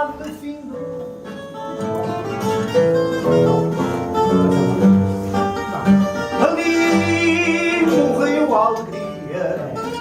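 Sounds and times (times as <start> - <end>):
guitars playing plucked notes: 0.0 - 10.0
person singing: 6.3 - 9.8.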